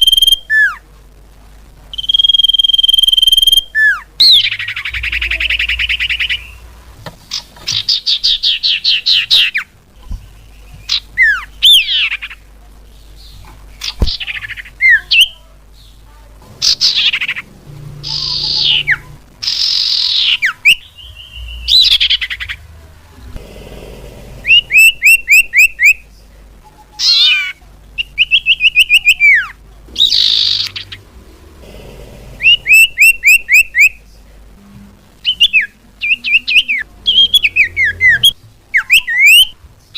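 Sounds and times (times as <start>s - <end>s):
bird calling: 24.2s - 26.0s, 27.0s - 34.0s, 35.2s - 39.6s.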